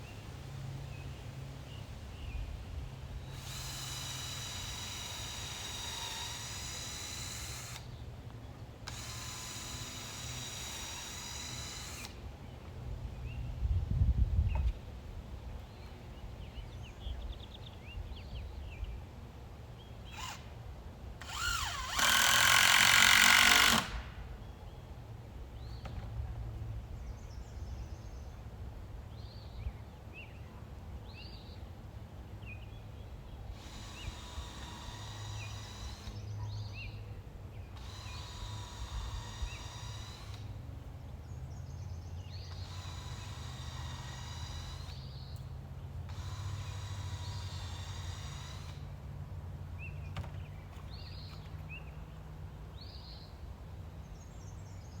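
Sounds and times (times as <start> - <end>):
power drill driving screws: 3.2 - 7.9, 8.8 - 12.2, 20.1 - 20.5, 21.2 - 24.2, 33.5 - 36.2, 37.8 - 40.6, 42.5 - 45.2, 46.1 - 48.9.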